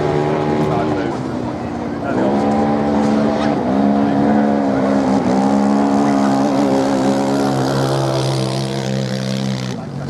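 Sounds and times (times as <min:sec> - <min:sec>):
racing motorcycle engine high revs: 0:02.0 - 0:10.0.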